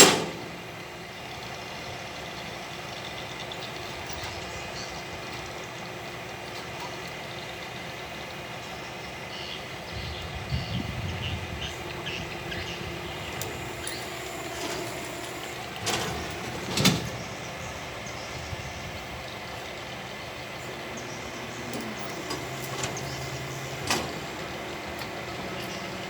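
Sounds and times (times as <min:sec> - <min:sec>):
excavator engine running: 0:00.0 - 0:26.0.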